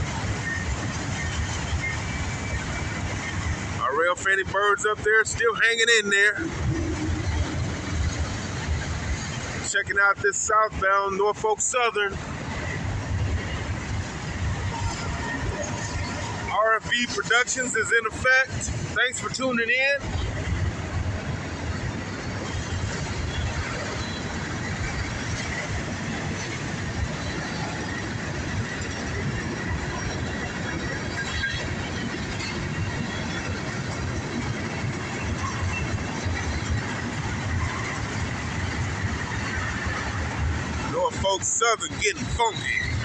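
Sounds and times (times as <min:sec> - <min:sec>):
train wheels rumbling on rails: 0:00.0 - 0:43.0
high wheel squeal: 0:00.1 - 0:03.7, 0:22.4 - 0:43.0.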